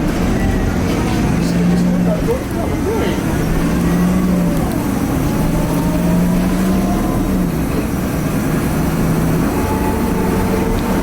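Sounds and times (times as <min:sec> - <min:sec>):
bus diesel engine droning: 0:00.0 - 0:11.0
road rumble: 0:00.0 - 0:11.0.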